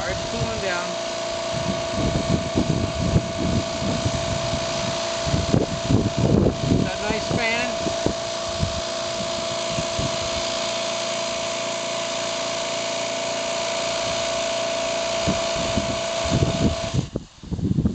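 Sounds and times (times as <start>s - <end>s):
pressure washer hissing and whining: 0.0s - 17.9s.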